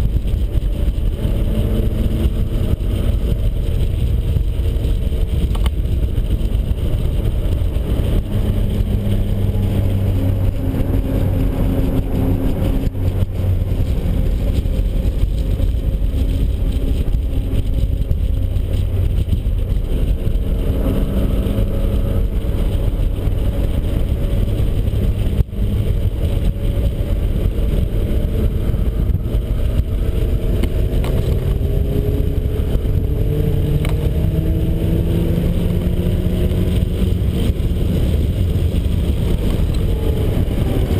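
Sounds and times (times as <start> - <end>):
car engine at speed: 0.0 - 40.9
wind and road noise: 0.0 - 40.9.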